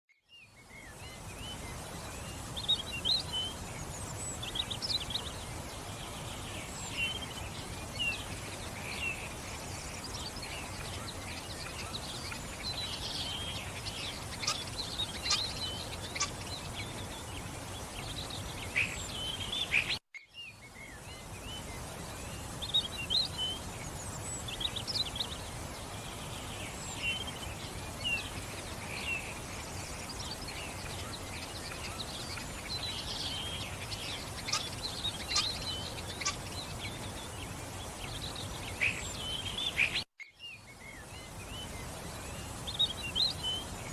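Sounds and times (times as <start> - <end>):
birds chirping: 0.1 - 43.9
steady background hiss: 0.3 - 43.9.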